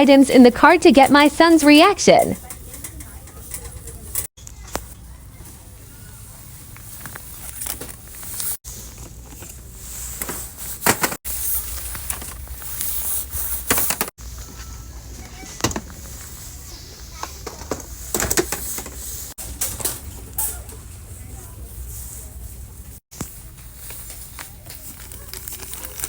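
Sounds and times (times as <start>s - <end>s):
indistinct voices: 0.0s - 2.5s.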